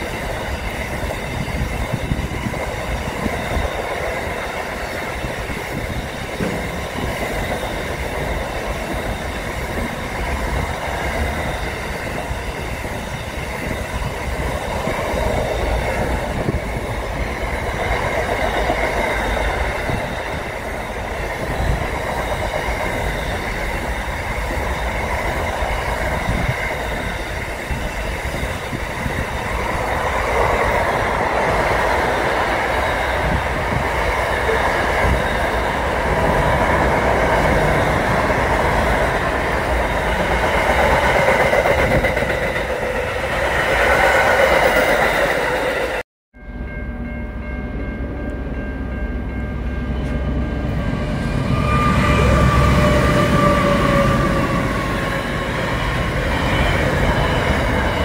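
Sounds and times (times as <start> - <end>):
train wheels rumbling and rattling: 0.0 - 46.0, 48.9 - 58.0
faint high ring: 46.4 - 53.7.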